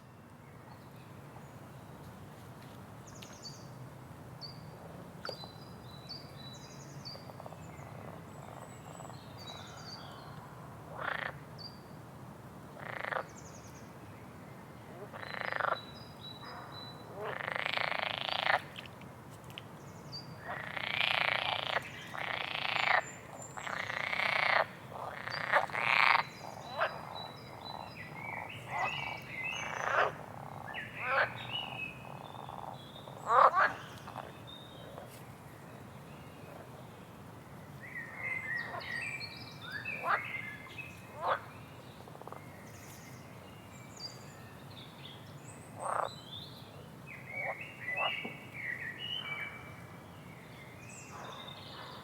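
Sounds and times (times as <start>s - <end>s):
frogs croaking: 10.9s - 11.4s, 12.8s - 13.4s, 15.0s - 15.9s, 16.5s - 18.9s, 20.4s - 34.3s, 39.7s - 40.4s, 41.2s - 41.5s, 42.2s - 42.5s, 45.8s - 46.1s, 47.3s - 48.3s.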